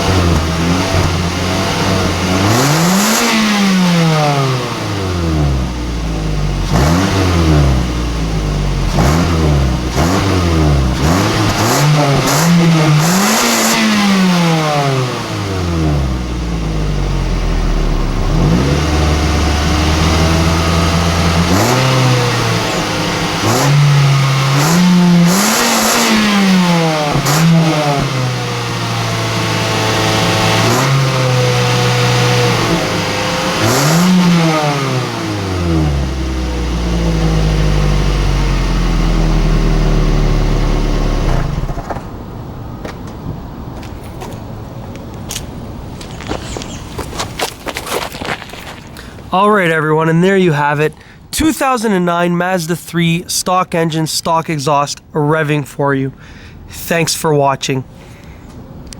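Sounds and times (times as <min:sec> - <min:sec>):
car engine revving: 0:00.0 - 0:42.7.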